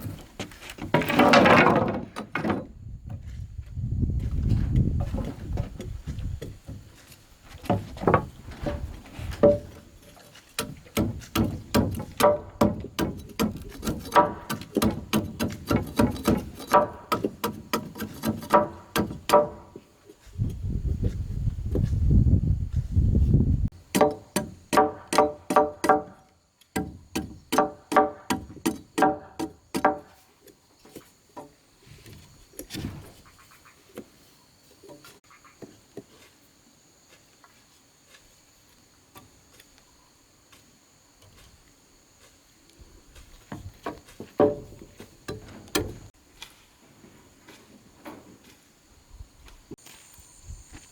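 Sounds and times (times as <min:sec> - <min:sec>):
insects droning: 0:00.0 - 0:50.9
tool striking bamboo: 0:09.4 - 0:09.8, 0:10.6 - 0:19.8, 0:23.7 - 0:30.1.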